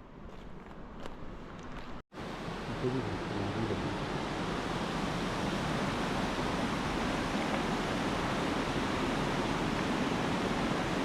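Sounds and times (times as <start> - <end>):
river water rushing: 2.2 - 11.0.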